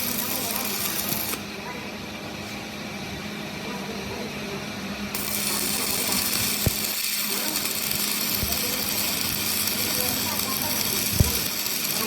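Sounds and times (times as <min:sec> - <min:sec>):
workshop machinery humming: 0:00.0 - 0:12.0
loud hiss: 0:05.2 - 0:12.0.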